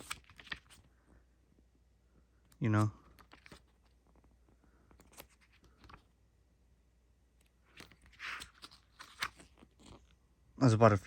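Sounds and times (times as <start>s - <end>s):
paper rustle: 0.0s - 0.9s, 2.7s - 6.2s, 7.4s - 10.2s.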